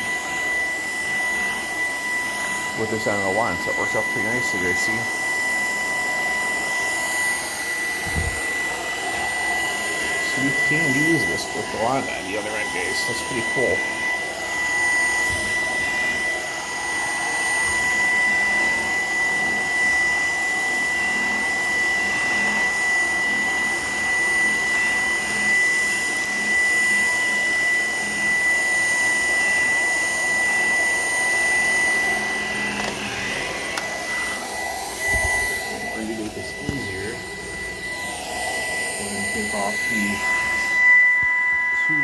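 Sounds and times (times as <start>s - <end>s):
vacuum cleaner running: 0.0s - 42.0s.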